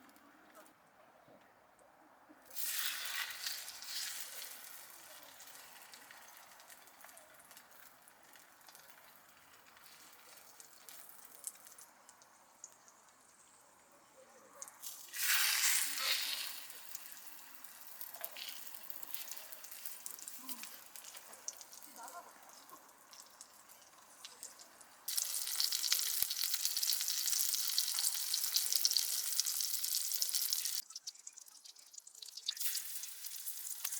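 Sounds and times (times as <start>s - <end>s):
food sizzling in a pan: 2.5s - 6.9s, 14.8s - 33.9s.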